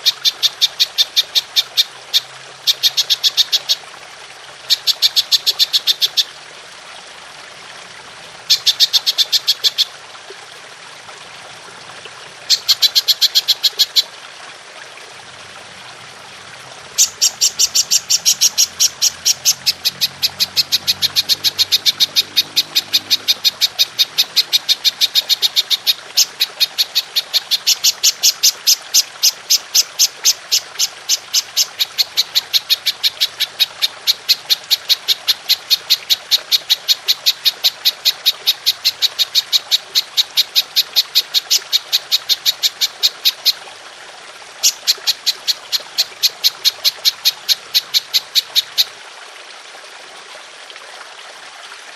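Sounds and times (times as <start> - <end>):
water trickling: 0.0 - 51.9
grasshopper chirping: 17.0 - 33.5.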